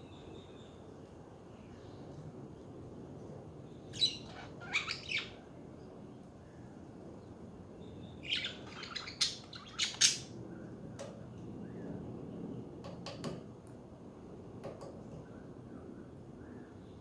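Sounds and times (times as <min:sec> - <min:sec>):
low background noise: 0:00.0 - 0:17.0
budgerigars chirping: 0:03.9 - 0:05.4, 0:08.2 - 0:10.3.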